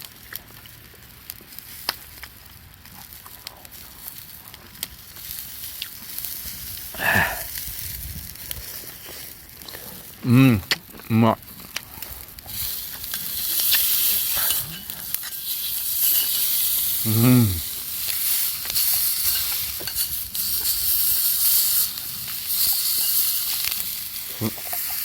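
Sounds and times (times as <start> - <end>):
meat sizzling in a pan: 0.0 - 10.5, 11.4 - 25.0
person humming: 10.2 - 10.8, 17.0 - 17.7.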